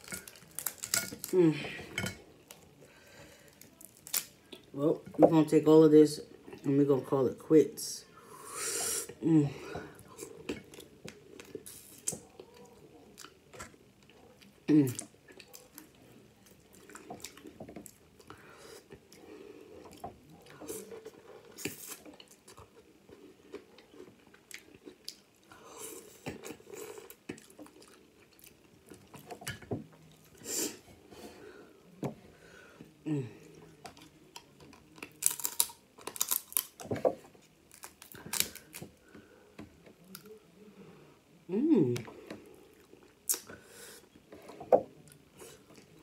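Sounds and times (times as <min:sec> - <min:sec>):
crab shell crackling: 0:00.0 - 0:01.4, 0:34.0 - 0:36.9, 0:37.6 - 0:39.2.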